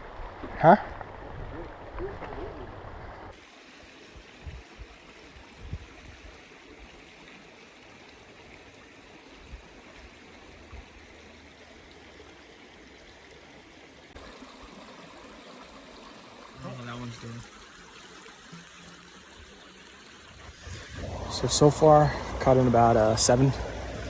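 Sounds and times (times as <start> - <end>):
creek water rushing: 0.0 - 24.0.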